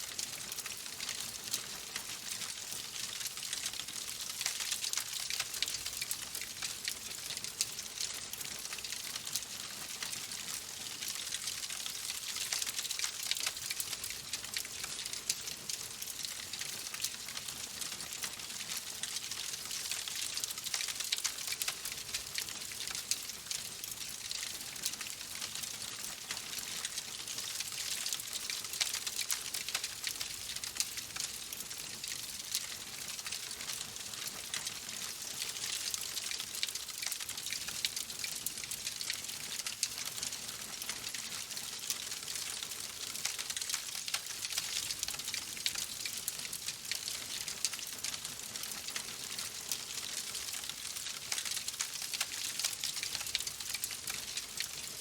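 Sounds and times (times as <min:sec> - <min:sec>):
steady rain pattering: 0:00.0 - 0:55.0.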